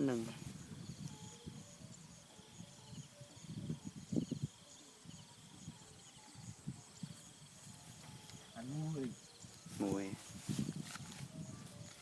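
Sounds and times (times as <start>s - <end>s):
close rustling: 7.6s - 12.0s.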